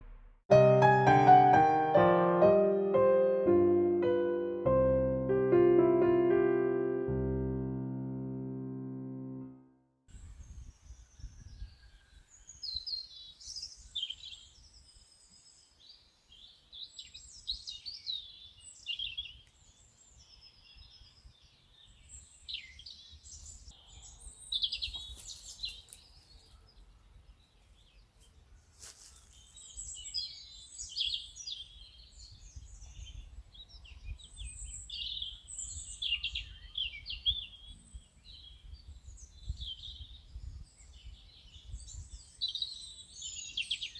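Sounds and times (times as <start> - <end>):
songbirds chirping and trilling: 10.2 - 43.9.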